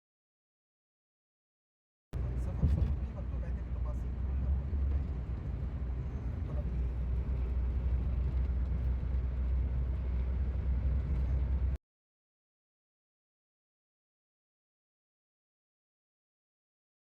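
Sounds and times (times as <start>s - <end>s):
vehicle interior rumble: 2.2s - 11.8s.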